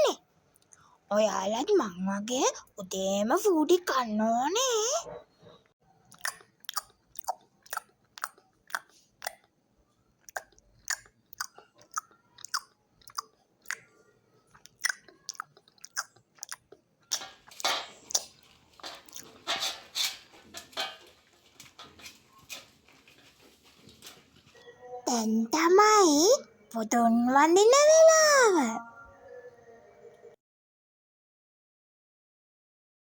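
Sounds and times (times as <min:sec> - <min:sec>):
dog crunching food: 0:14.7 - 0:24.6.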